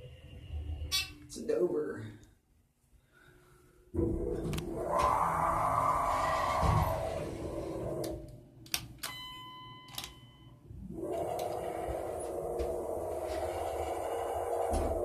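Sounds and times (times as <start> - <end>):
whooshing hum: 3.5 - 8.6, 10.6 - 15.0
elevator running noise: 4.0 - 8.3, 9.1 - 15.0
electronic elevator chime: 9.0 - 10.6.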